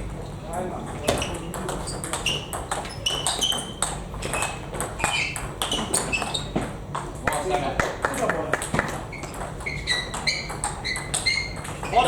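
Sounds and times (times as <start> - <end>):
shoe squeaks: 1.1 - 6.8, 9.1 - 12.0.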